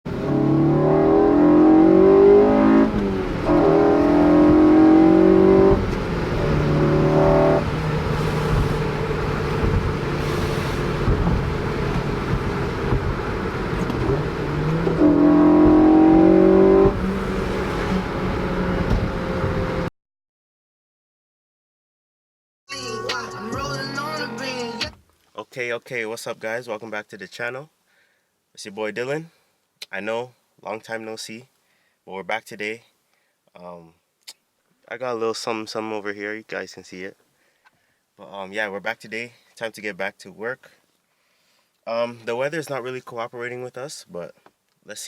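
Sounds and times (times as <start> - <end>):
car engine revving: 0.1 - 19.9.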